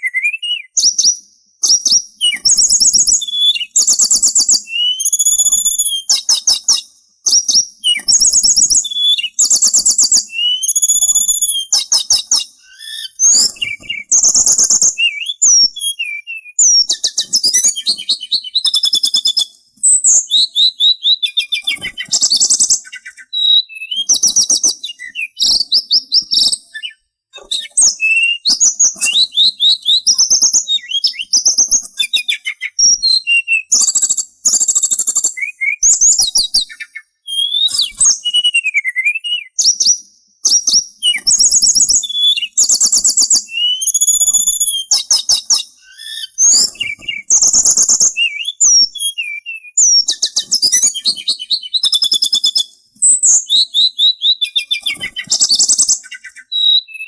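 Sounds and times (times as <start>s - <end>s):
songbird chattering song: 0.0s - 57.0s.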